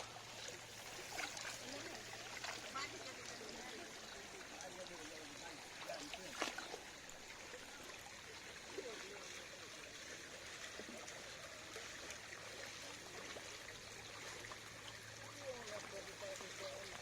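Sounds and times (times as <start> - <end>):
water running and trickling: 0.0 - 17.0.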